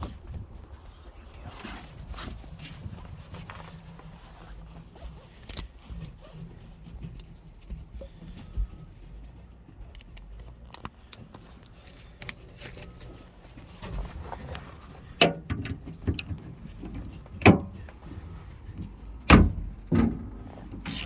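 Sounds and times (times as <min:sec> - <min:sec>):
hand tools clicking and rattling: 0:05.4 - 0:05.8, 0:20.6 - 0:21.0.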